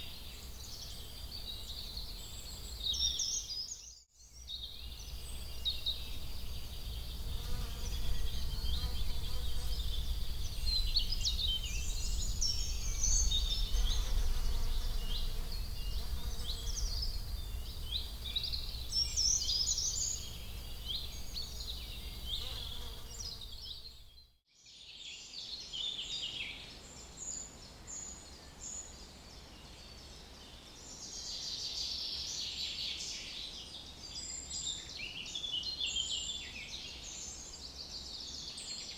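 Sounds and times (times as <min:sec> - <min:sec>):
small birds chirping and singing: 0:00.0 - 0:24.0
low rumble: 0:08.1 - 0:22.3.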